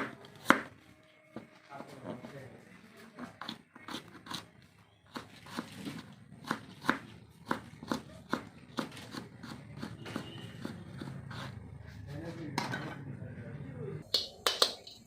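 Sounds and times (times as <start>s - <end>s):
knife chopping on cutting board: 0.0s - 0.7s.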